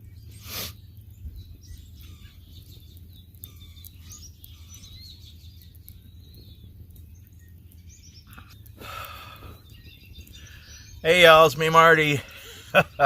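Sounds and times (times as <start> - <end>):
low outdoor rumble: 0.0 - 13.0
songbirds chirping and singing: 0.0 - 13.0.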